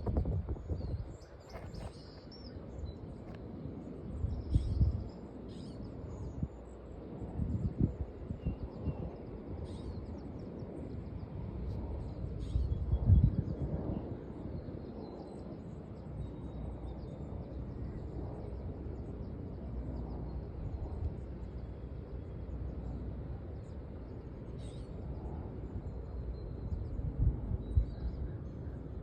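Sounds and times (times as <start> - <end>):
faint bird chirps: 20.1 - 26.9.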